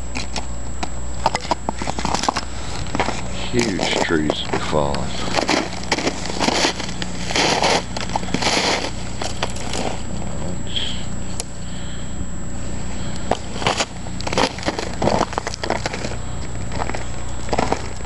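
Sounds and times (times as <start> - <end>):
footsteps crunching on ice: 1.3 - 10.1, 13.2 - 18.0.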